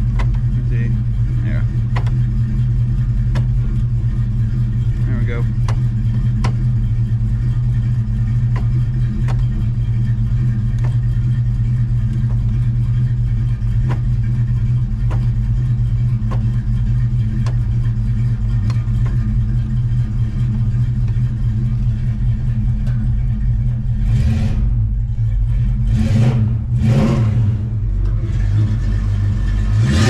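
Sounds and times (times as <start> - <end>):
faint engine ticks: 0.0 - 26.8, 27.6 - 29.7
car engine running: 0.0 - 30.0.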